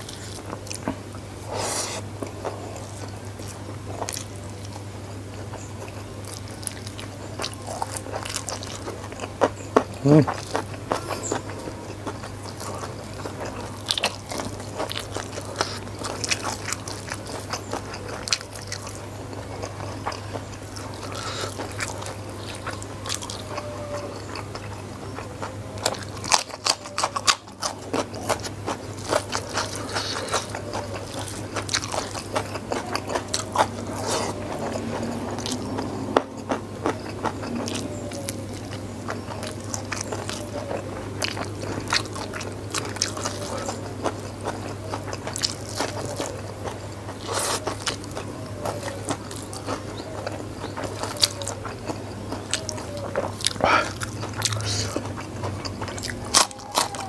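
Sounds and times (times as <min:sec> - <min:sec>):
chewing with crunches: 0:00.0 - 0:57.0.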